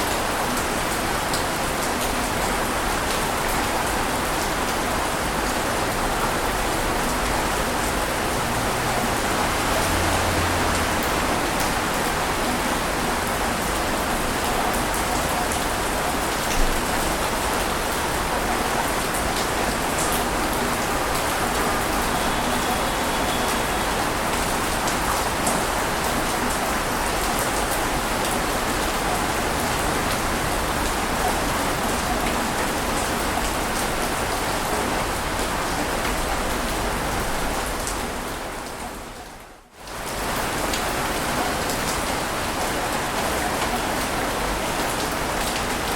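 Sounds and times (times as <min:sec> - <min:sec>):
water rushing: 0:06.3 - 0:38.7.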